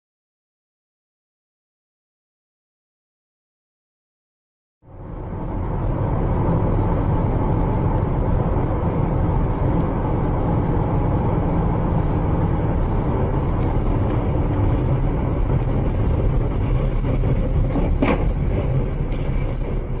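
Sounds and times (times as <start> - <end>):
vehicle running and road noise: 4.8 - 20.0.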